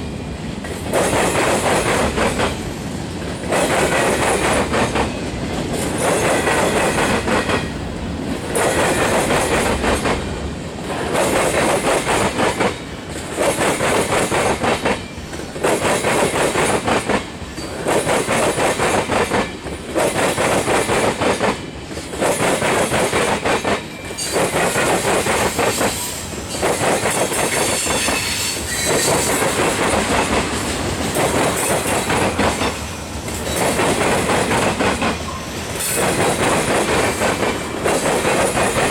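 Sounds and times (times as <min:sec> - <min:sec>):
high wheel squeal: 0:24.0 - 0:29.7.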